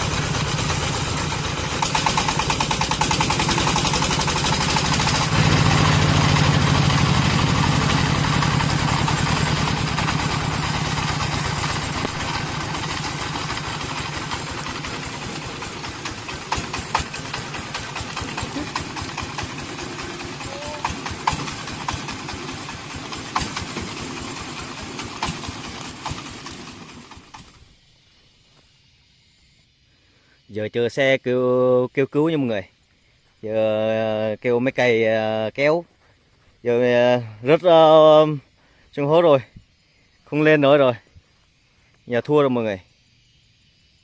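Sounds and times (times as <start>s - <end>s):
diesel engine chugging: 0.0s - 27.7s.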